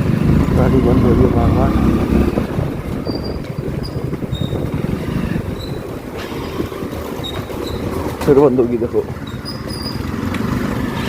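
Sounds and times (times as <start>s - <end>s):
wind rush on microphone: 0.0s - 8.2s
motorcycle engine running unevenly: 0.0s - 11.0s.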